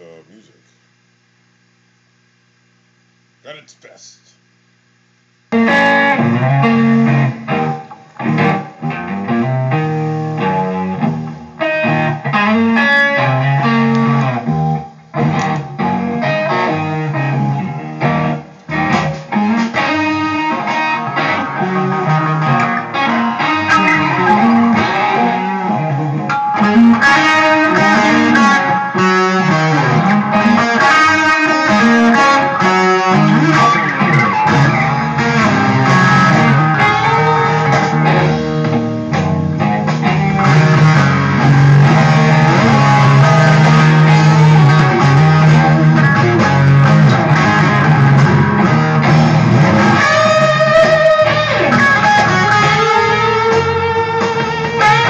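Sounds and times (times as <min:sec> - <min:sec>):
slow bluesy electric guitar: 0:05.5 - 0:55.0.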